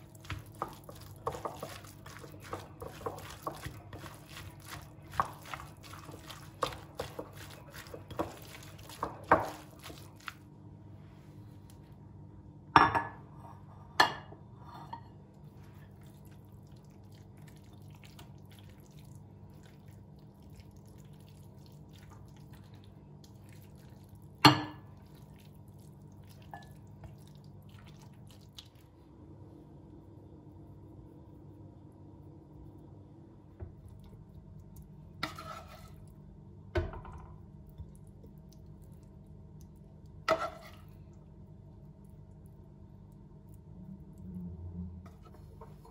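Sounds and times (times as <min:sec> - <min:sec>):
steady low hum: 0:00.0 - 0:45.9
kitchenware clinking: 0:12.7 - 0:15.1.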